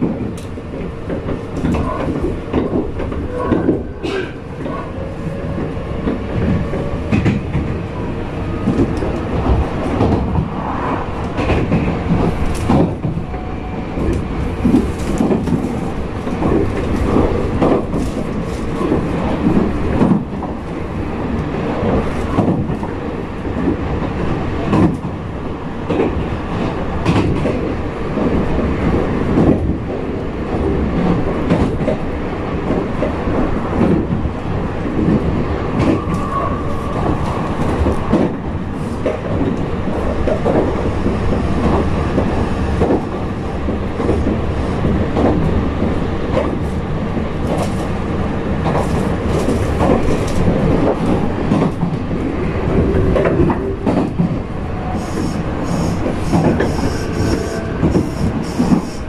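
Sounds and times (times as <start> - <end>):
track clicks and knocks: 0.0 - 4.9, 5.5 - 10.6, 11.2 - 20.6, 39.0 - 46.8
train wheels rolling on rail: 0.0 - 59.0.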